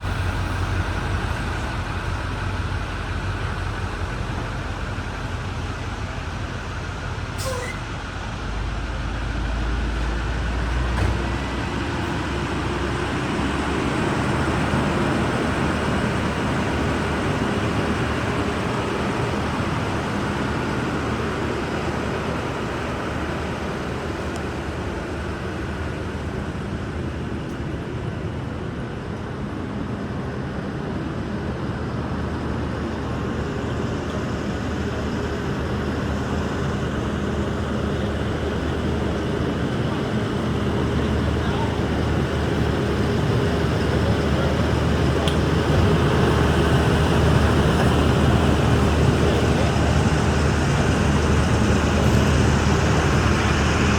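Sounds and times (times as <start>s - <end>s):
vacuum truck running: 9.9s - 27.3s, 32.6s - 53.9s.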